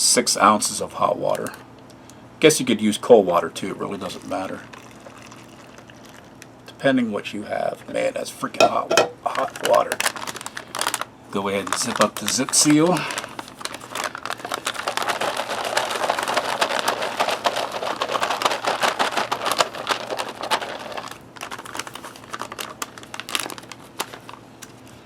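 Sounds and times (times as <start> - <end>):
plastic pouch crinkling: 9.2 - 25.0.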